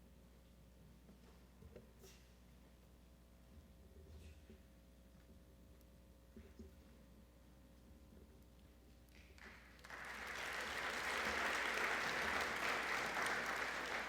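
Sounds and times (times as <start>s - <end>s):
audience applauding: 9.4s - 14.0s.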